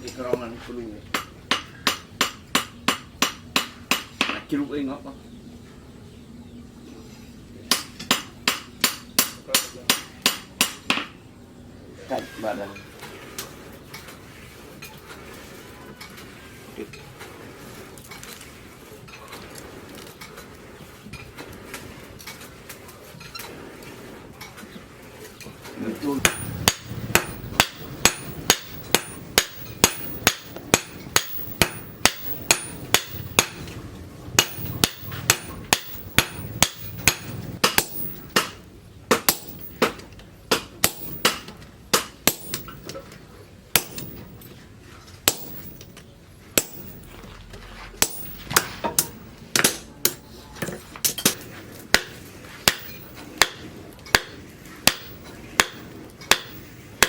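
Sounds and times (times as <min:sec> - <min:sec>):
hammer striking steel on anvil: 0:07.7 - 0:11.1, 0:26.2 - 0:43.0, 0:43.8 - 0:44.6, 0:45.2 - 0:46.0, 0:46.6 - 0:47.3, 0:48.0 - 0:57.0.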